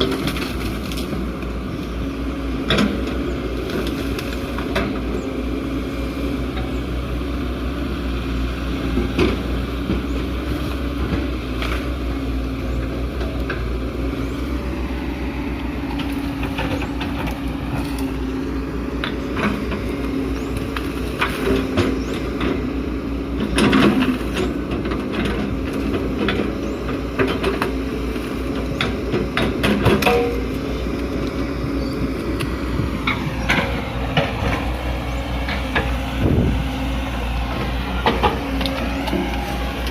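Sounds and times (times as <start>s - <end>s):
excavator diesel engine running: 0.0s - 39.9s
metal clanks and knocks: 28.8s - 30.6s.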